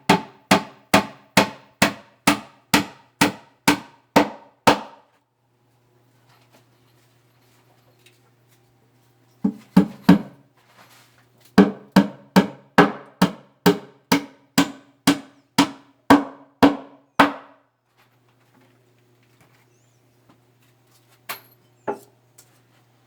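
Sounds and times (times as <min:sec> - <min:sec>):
hammering on wood: 0:00.0 - 0:05.1, 0:09.5 - 0:10.4, 0:11.6 - 0:17.6.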